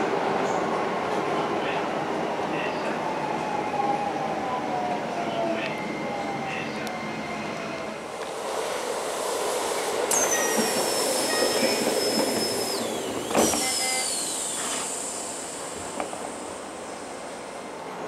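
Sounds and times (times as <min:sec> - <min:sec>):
electric train running noise: 0:08.1 - 0:17.8
high-pitched falling squeal: 0:10.1 - 0:17.3.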